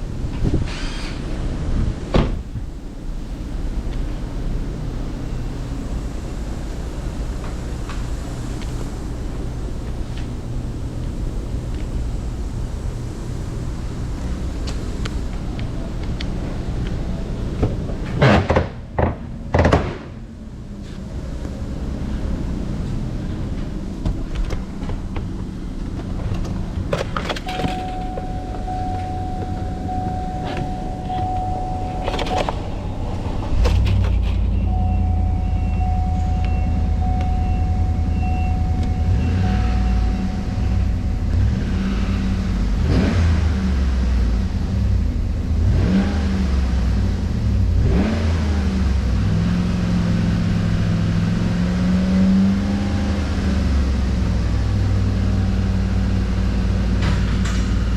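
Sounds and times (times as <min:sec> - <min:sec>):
car engine starting and idling: 0:00.0 - 0:57.9
engine revving: 0:20.6 - 0:57.9
electronic chime: 0:27.5 - 0:33.0, 0:34.5 - 0:42.2.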